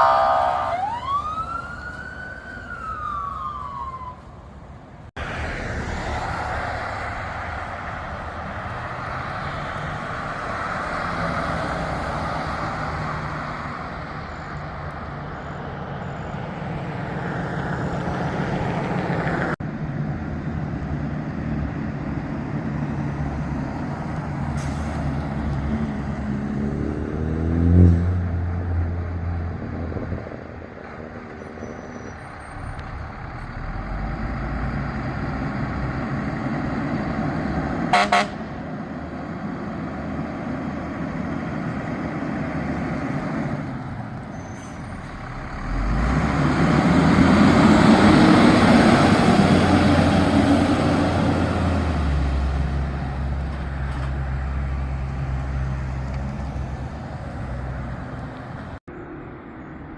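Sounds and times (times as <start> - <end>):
fire truck siren winding down: 0.0 - 4.6
diesel engines pulling away: 0.0 - 59.9.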